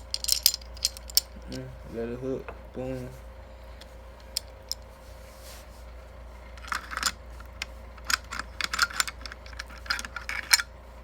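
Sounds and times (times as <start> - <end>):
pistol parts clicking: 0.0 - 1.6, 6.6 - 10.7.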